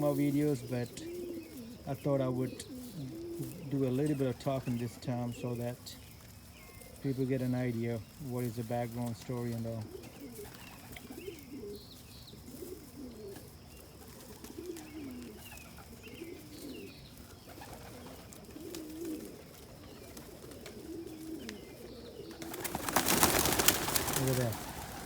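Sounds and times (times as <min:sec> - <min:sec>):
pigeons cooing: 0:00.0 - 0:25.0
wings flapping: 0:22.3 - 0:25.0.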